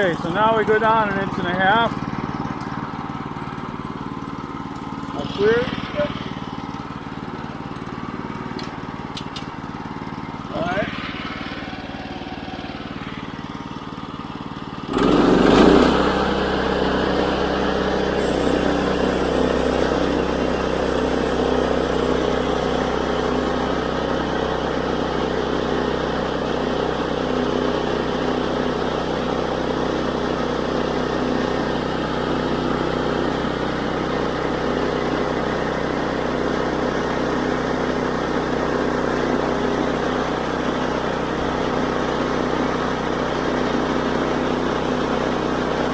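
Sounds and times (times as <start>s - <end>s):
sawmill gas engine running: 0.0s - 45.9s
band saw blade cutting log: 14.9s - 28.2s.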